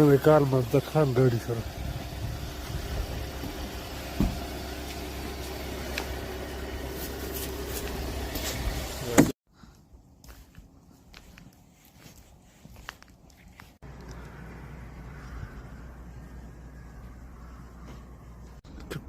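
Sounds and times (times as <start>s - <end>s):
truck engine humming: 0.0s - 9.3s, 13.1s - 19.0s.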